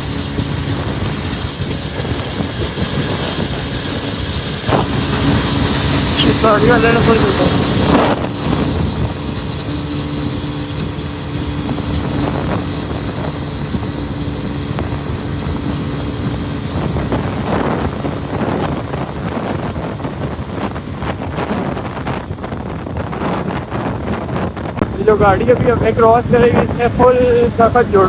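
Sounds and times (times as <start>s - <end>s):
motorcycle engine running: 0.0s - 18.5s
wind rush on microphone: 0.0s - 28.0s.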